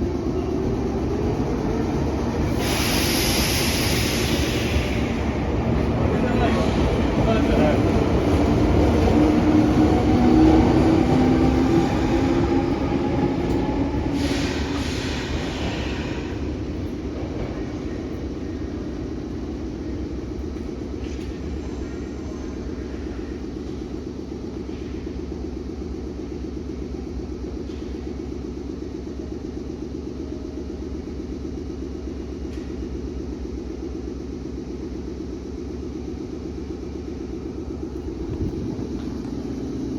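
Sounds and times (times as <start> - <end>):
rail rumble: 0.0 - 39.9
air hiss: 2.5 - 5.4, 14.1 - 16.5.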